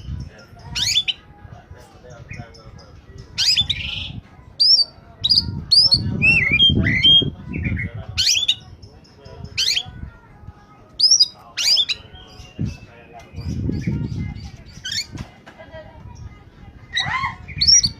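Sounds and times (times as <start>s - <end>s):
bird singing whistled notes: 0.0s - 1.3s, 2.3s - 10.0s, 11.0s - 15.2s, 17.0s - 17.9s.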